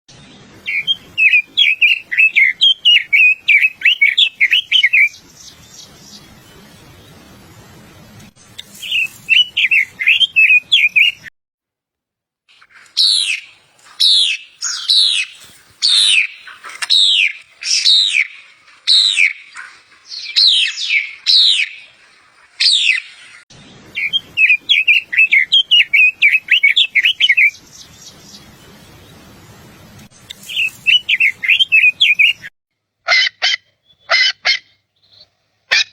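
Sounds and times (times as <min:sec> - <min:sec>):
songbird chirps: 0:00.1 - 0:11.3, 0:12.5 - 0:32.5, 0:33.6 - 0:35.5
loud falling whistled bird notes: 0:23.9 - 0:28.4, 0:30.5 - 0:32.4.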